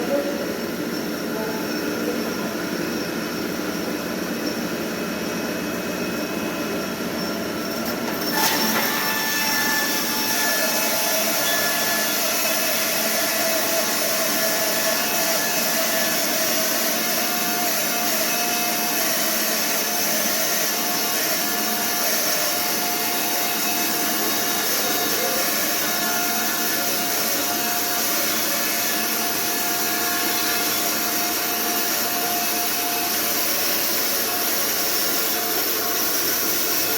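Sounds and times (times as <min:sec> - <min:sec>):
sawmill running: 0:00.0 - 0:36.9
saw cutting through log: 0:08.1 - 0:36.9.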